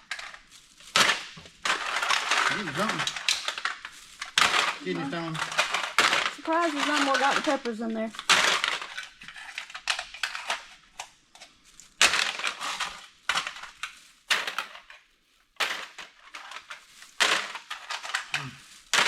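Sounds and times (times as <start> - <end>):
aluminum cans clattering: 0.1 - 10.8, 15.6 - 19.0.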